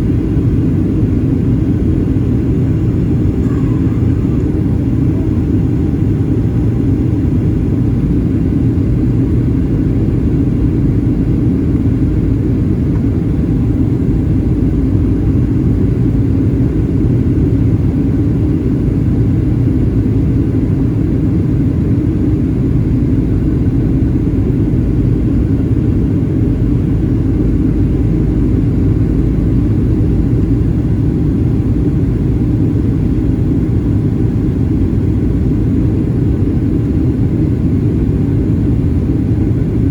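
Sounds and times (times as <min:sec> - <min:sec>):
airflow noise: 0:00.0 - 0:15.7
aircraft engine drone in cabin: 0:00.0 - 0:39.9.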